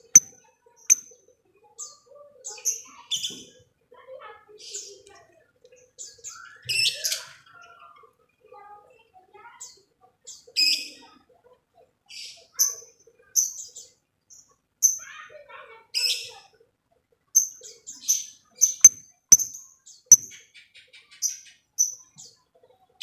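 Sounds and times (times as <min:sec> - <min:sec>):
lovebird ticking calls: 0:18.8 - 0:20.3.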